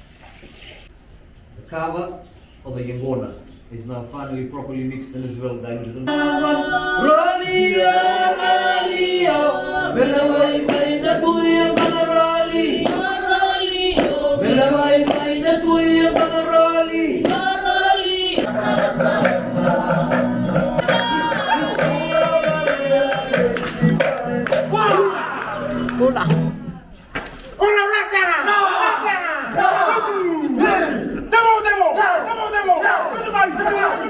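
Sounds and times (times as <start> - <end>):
group singing in harmony: 6.1 - 26.8
steady beat of sharp strikes: 10.6 - 11.0, 11.7 - 12.2, 12.8 - 13.2, 15.0 - 15.3, 16.1 - 16.4.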